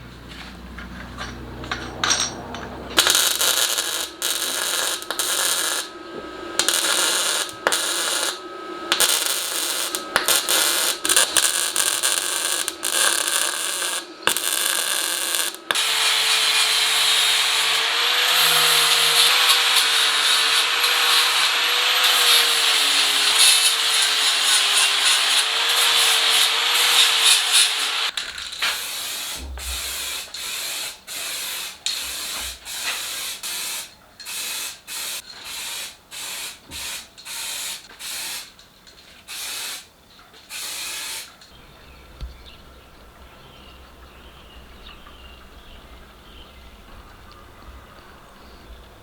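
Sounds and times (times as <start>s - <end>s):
handheld power tool running: 3.0s - 30.4s.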